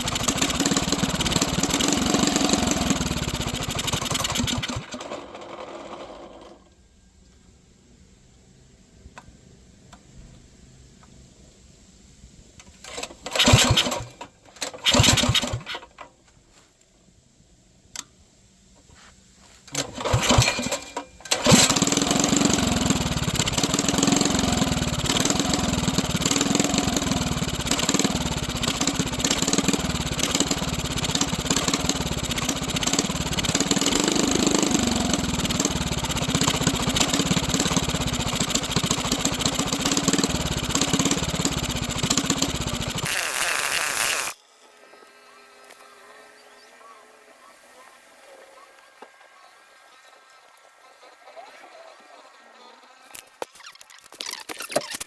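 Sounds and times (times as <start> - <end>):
small engine starting and running: 0.0 - 6.8, 12.8 - 16.0, 19.7 - 44.4.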